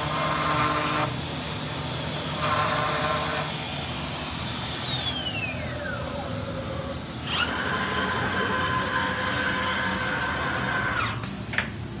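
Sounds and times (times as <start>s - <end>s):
machine spindle whining: 2.0s - 11.3s.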